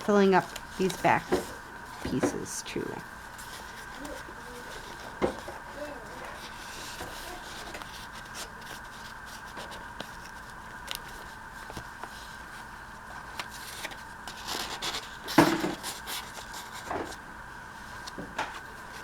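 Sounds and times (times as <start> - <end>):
faint steady hum: 0.0 - 19.0
paper rustling and scraping: 3.3 - 17.2.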